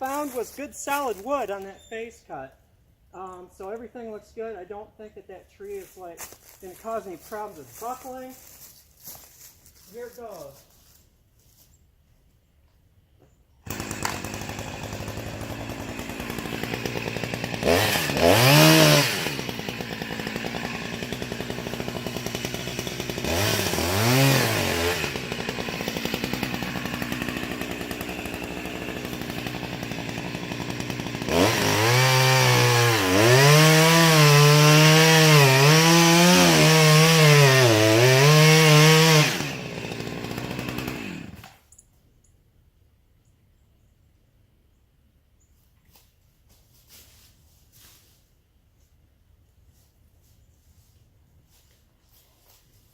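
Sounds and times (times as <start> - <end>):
chainsaw cutting wood: 0.0 - 1.7, 13.6 - 41.7.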